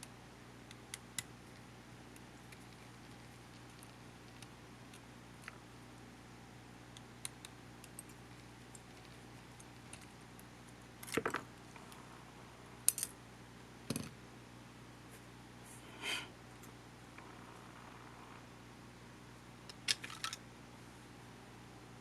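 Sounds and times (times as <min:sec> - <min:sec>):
small parts clicking and tapping: 0:07.0 - 0:12.0, 0:12.9 - 0:13.2, 0:19.7 - 0:20.4.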